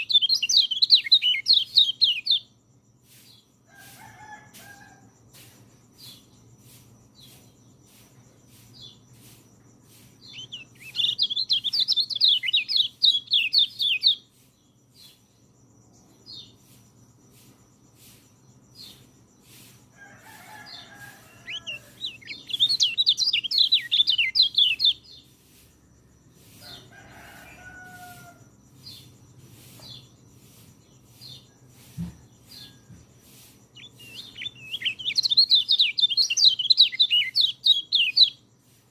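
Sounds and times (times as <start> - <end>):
lower-pitched bird calls: 0.0 - 2.5, 10.2 - 14.3, 20.4 - 25.2, 33.8 - 38.4
songbird warbling song: 0.0 - 4.3, 5.3 - 27.9, 28.6 - 38.9.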